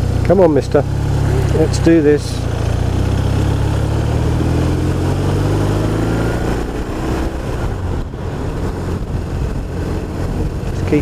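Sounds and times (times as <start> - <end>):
motorcycle engine pulling away: 0.0 - 11.0
wind noise on microphone: 6.0 - 11.0.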